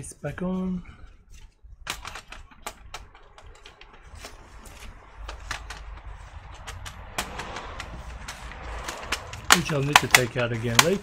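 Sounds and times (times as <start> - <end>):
plastic case clicks and snaps: 9.0 - 11.0.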